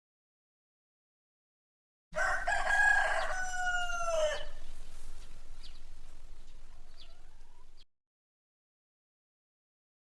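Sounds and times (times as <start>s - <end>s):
rooster crowing: 2.2s - 7.8s.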